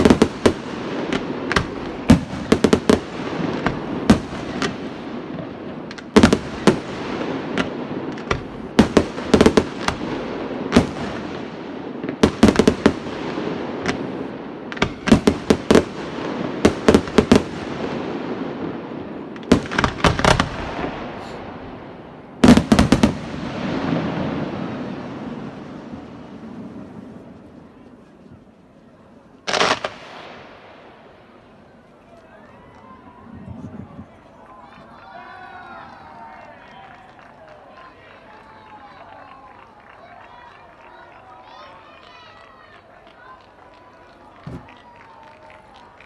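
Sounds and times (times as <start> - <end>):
fireworks bursting with echo: 0.0 - 28.6, 29.4 - 31.7.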